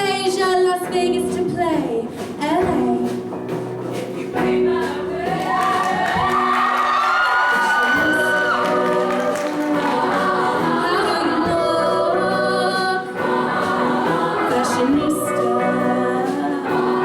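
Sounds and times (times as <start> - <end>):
backing music: 0.0 - 17.0
choir singing in harmony: 3.9 - 17.0.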